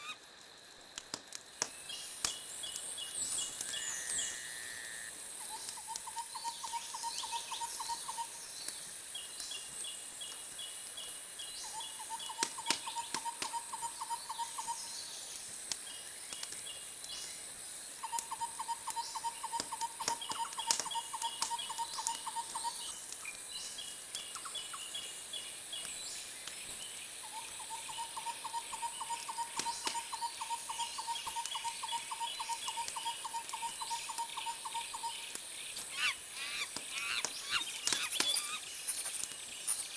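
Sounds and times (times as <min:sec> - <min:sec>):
steady high hiss: 0:00.0 - 0:39.9
trilling animal calls: 0:35.8 - 0:38.7
fast chattering calls: 0:35.8 - 0:39.2
sharp crackles: 0:36.6 - 0:39.9.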